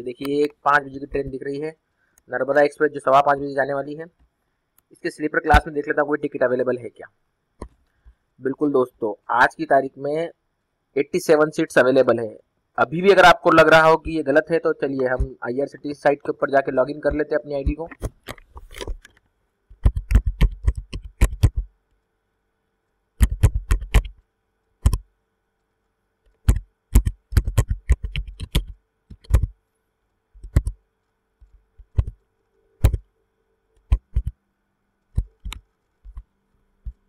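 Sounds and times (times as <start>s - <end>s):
computer keyboard typing: 19.7s - 21.7s, 23.2s - 24.2s, 24.8s - 25.1s, 26.3s - 29.6s, 30.4s - 30.8s, 31.4s - 32.2s, 32.8s - 33.1s, 33.8s - 34.4s, 35.1s - 36.3s.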